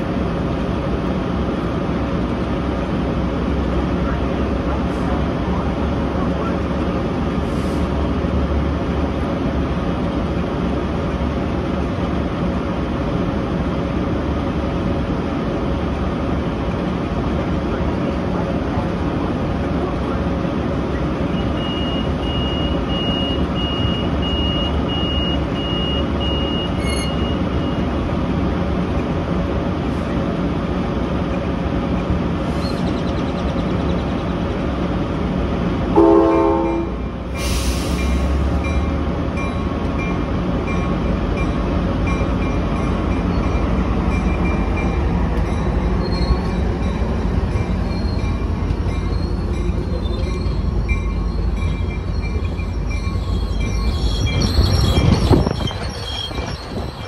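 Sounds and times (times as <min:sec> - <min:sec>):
diesel locomotive running: 0:00.0 - 0:57.0
train pulling out: 0:00.0 - 0:57.0
train horn toot: 0:35.9 - 0:37.1
loud hiss of air: 0:37.3 - 0:38.5
high beeping tone: 0:44.1 - 0:56.8.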